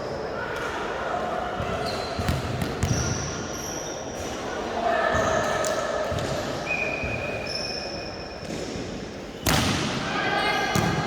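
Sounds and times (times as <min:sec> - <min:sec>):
sneakers squeaking on court floor: 0:01.6 - 0:04.3, 0:06.1 - 0:09.5.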